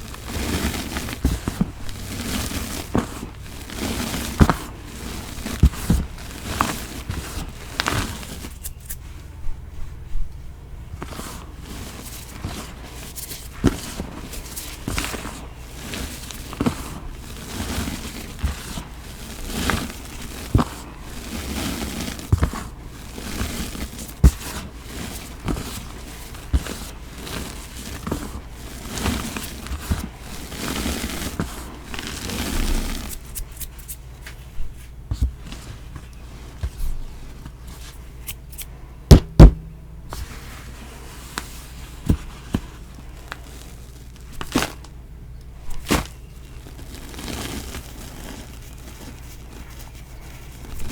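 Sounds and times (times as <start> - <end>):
powder blocks crunching by hand: 0.0 - 9.0, 11.0 - 50.9
loud knocks: 39.1 - 40.1.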